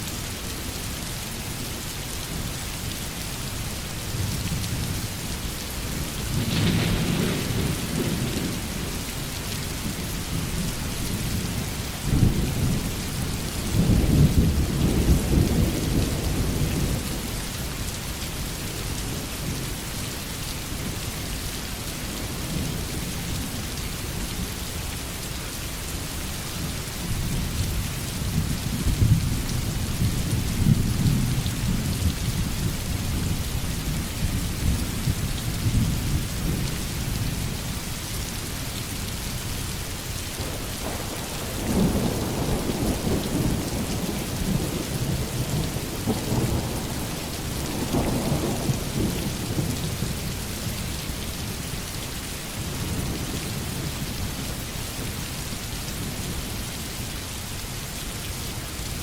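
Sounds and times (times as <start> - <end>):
heavy rain falling: 0.0 - 59.0
thunder rumbling: 6.2 - 9.0, 40.4 - 50.1.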